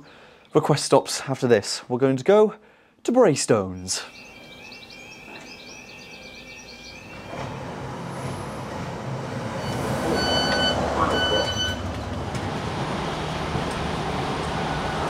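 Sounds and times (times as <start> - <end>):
door warning beeps: 4.0 - 7.8, 9.6 - 12.0.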